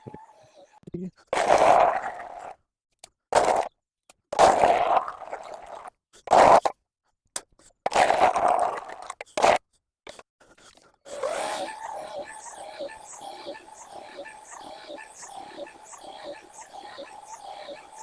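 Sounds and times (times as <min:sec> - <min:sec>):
powered brush scraping a path: 0:11.1 - 0:18.0.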